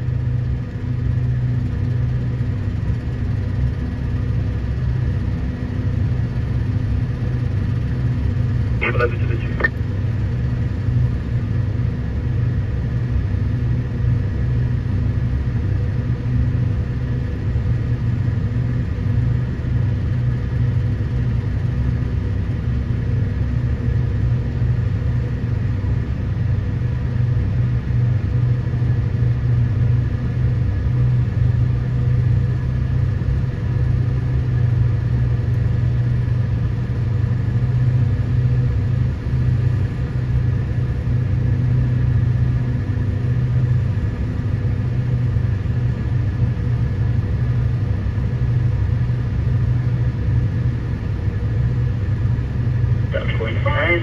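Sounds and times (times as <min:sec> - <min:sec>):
excavator diesel engine drone: 0:05.5 - 0:10.8, 0:51.9 - 0:54.0.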